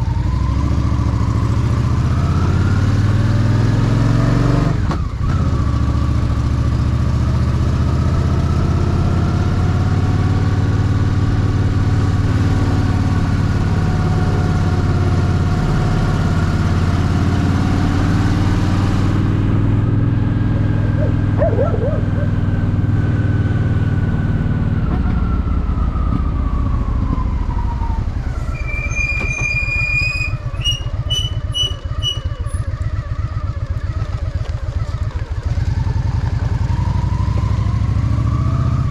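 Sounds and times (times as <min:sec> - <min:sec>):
motorcycle engine running: 0:04.9 - 0:24.8, 0:30.3 - 0:38.9.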